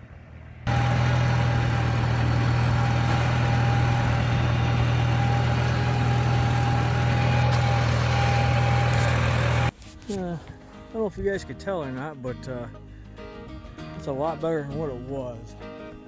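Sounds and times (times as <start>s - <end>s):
tractor engine running: 0.0s - 9.7s.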